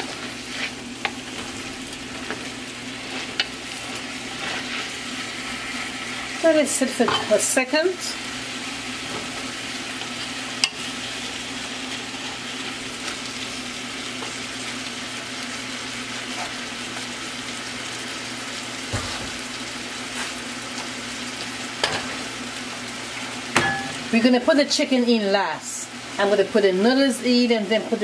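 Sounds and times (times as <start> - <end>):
vegetables sizzling in a pot: 0.0 - 28.0.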